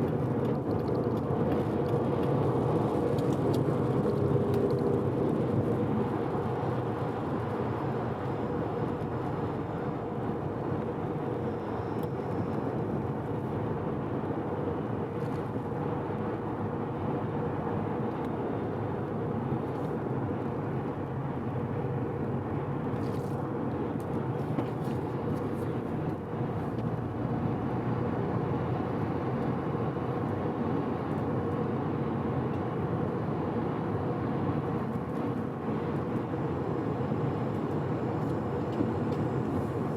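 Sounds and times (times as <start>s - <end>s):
car engine cruising: 0.0s - 18.1s
tyre and road noise: 0.0s - 39.9s.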